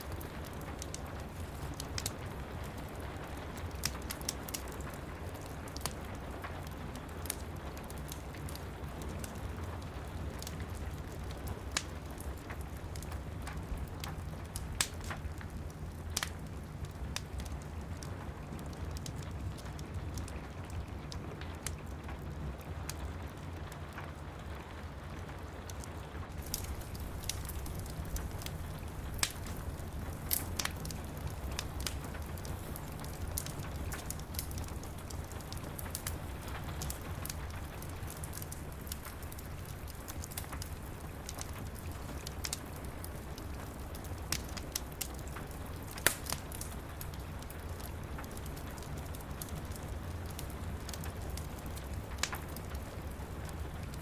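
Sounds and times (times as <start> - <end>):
rain on window glass: 0.0 - 54.0
wood fire crackling: 0.0 - 54.0.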